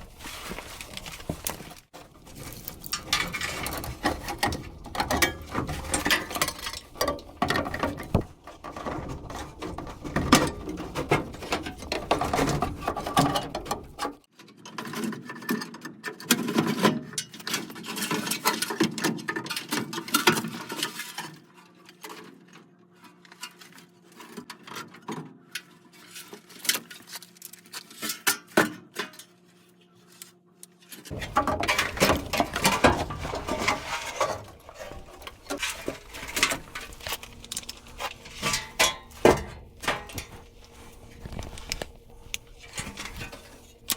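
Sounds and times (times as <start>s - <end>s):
hand tools clicking and rattling on metal: 0.0s - 15.7s, 31.1s - 43.9s
faint steady hum: 31.1s - 43.9s.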